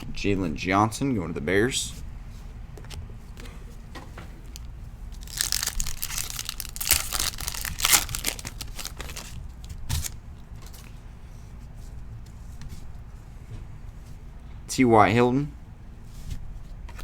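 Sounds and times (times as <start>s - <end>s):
wrapper tearing and crinkling: 4.5s - 10.1s.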